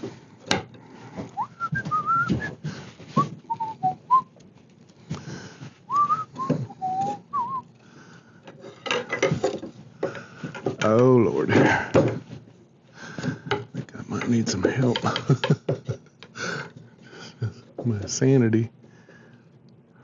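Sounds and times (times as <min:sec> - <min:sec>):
chair parts knocking and clicking: 0:00.0 - 0:03.4, 0:08.4 - 0:12.4, 0:13.2 - 0:16.8
person whistling a tune: 0:01.4 - 0:02.6, 0:03.2 - 0:04.3, 0:05.9 - 0:07.6.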